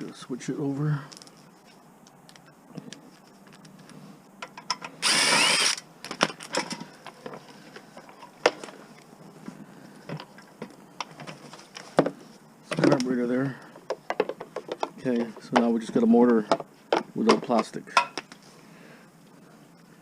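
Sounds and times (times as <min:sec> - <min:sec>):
power drill running: 0:05.0 - 0:05.8.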